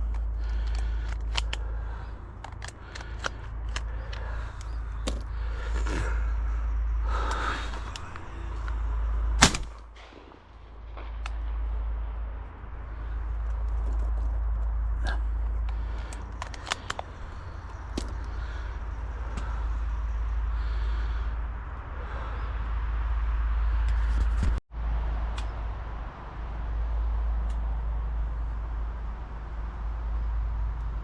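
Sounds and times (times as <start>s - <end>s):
handling clicks and rustles: 0.0s - 6.6s, 7.2s - 11.9s, 12.8s - 20.0s
wind rumble on microphone: 0.0s - 31.0s
shotgun shot: 9.4s - 11.7s.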